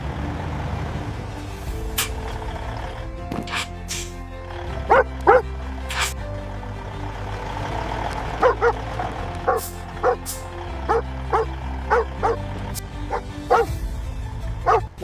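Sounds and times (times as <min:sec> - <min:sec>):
background music: 0:00.0 - 0:15.0
dog barking: 0:04.9 - 0:05.4, 0:08.4 - 0:10.2, 0:10.9 - 0:12.4, 0:13.1 - 0:13.7, 0:14.7 - 0:14.9.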